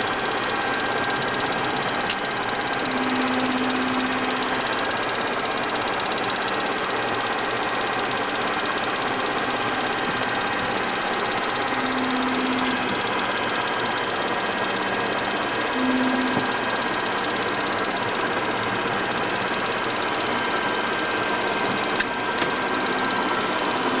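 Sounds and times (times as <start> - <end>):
faint steady whines: 0.0 - 6.8, 8.1 - 24.0
constant machinery hiss: 0.0 - 24.0.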